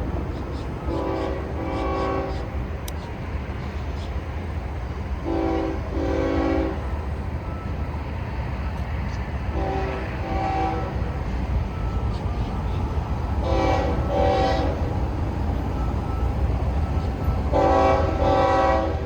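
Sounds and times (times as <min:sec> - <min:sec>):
passing train rumble: 0:00.0 - 0:19.0
locomotive air horn blasts: 0:00.8 - 0:02.7, 0:05.2 - 0:06.9, 0:09.5 - 0:11.2, 0:13.4 - 0:15.0, 0:17.4 - 0:19.0.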